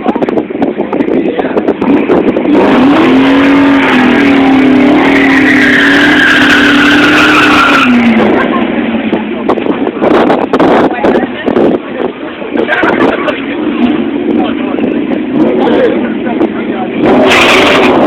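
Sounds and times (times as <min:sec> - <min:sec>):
car engine revving: 0:00.6 - 0:18.0
tire squeal: 0:02.8 - 0:08.5.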